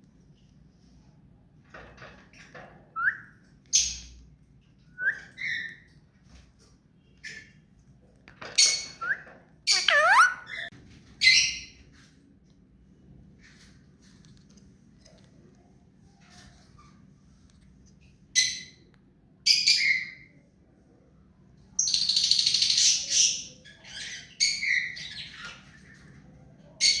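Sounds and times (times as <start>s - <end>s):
parakeet squawking and chirping: 8.6s - 11.6s.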